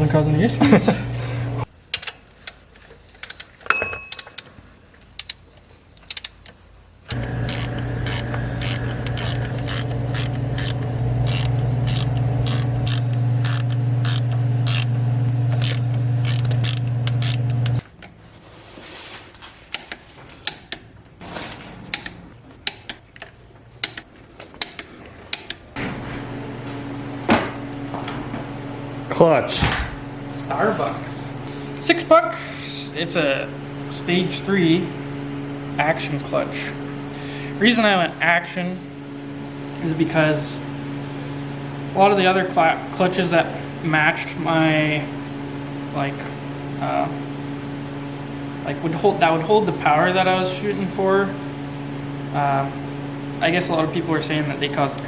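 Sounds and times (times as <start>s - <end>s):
low machine hum: 0.0s - 1.7s, 7.1s - 19.2s, 20.8s - 55.0s
hand ratchet clicking: 7.5s - 14.9s, 15.6s - 17.8s, 21.9s - 25.6s.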